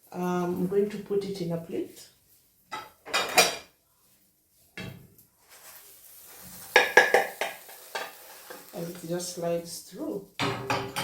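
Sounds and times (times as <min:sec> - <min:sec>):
plate and frying pan clattering: 0:02.7 - 0:03.7, 0:06.7 - 0:08.3.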